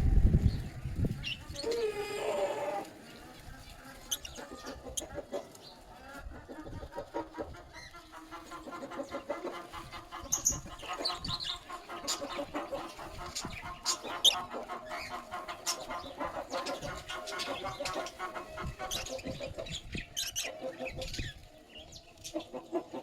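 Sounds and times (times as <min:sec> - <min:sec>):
bird chick begging chatter: 0:04.0 - 0:05.5, 0:06.4 - 0:21.4.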